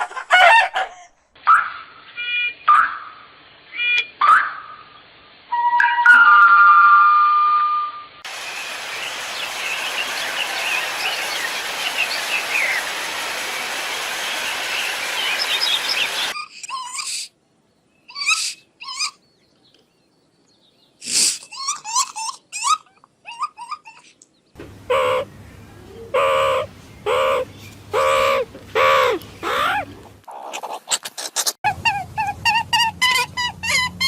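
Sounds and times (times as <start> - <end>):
loud bird calls: 8.3 - 17.2, 23.9 - 29.9
bird chirping: 8.4 - 12.9, 14.3 - 16.5.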